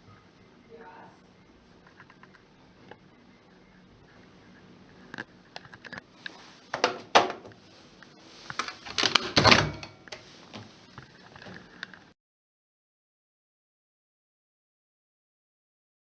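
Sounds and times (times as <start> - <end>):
washing machine door clicks and knocks: 9.0 - 10.0.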